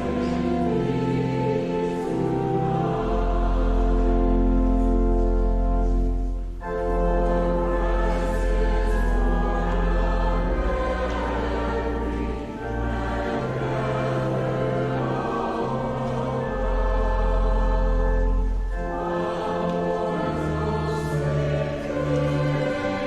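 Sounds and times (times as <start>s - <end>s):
church choir singing: 0.0s - 23.0s
instrumental accompaniment: 0.0s - 23.0s.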